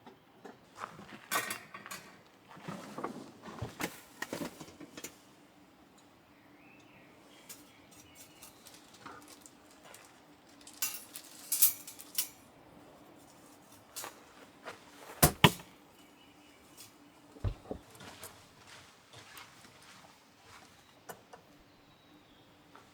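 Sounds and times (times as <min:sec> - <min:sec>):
loud knocks: 0:15.2 - 0:15.6, 0:17.4 - 0:17.8
objects clattering and clinking: 0:15.2 - 0:15.7, 0:17.4 - 0:17.9.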